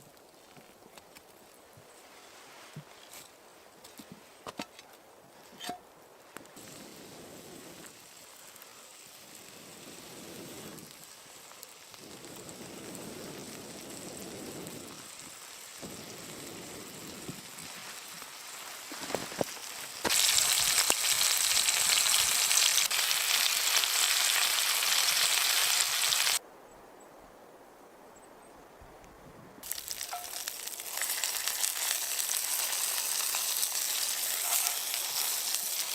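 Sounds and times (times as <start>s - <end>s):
food sizzling in a pan: 6.6s - 26.4s, 29.6s - 35.9s.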